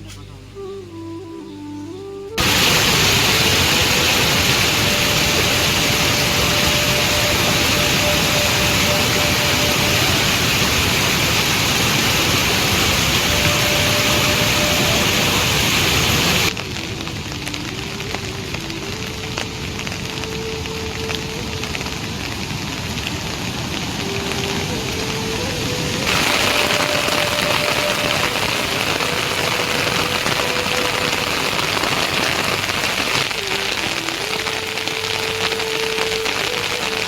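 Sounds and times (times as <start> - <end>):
quiet background music: 0.0 - 11.0
heavy rain pouring: 0.0 - 37.0
light rain: 0.0 - 37.0.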